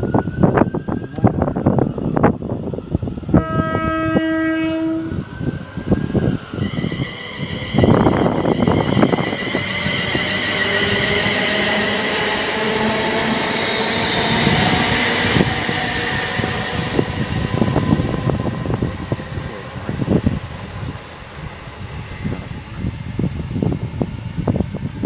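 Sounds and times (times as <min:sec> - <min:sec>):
train rushing past: 0:00.0 - 0:25.0.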